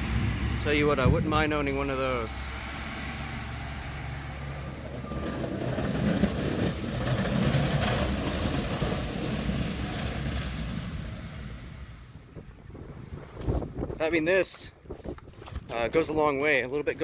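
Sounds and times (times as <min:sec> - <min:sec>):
truck engine rumbling by: 0:00.0 - 0:12.4.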